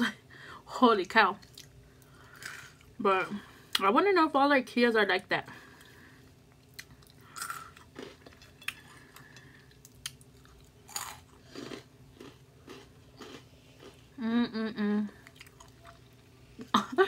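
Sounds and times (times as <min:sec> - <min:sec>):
crunching and chewing snacks: 0:01.4 - 0:03.0, 0:06.6 - 0:14.2, 0:15.2 - 0:16.3.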